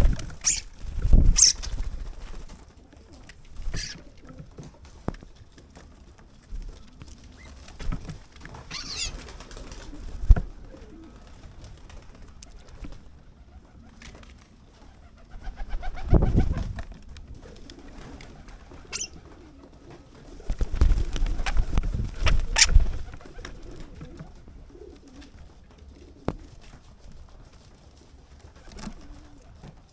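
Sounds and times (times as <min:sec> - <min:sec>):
bird cooing: 0:00.0 - 0:00.7, 0:01.3 - 0:01.8, 0:03.0 - 0:04.5, 0:08.7 - 0:11.2, 0:17.4 - 0:20.7, 0:21.3 - 0:26.6
starling whistled call: 0:00.4 - 0:00.7, 0:01.3 - 0:01.8, 0:03.7 - 0:04.0, 0:08.7 - 0:09.2, 0:18.9 - 0:19.2, 0:22.4 - 0:22.8.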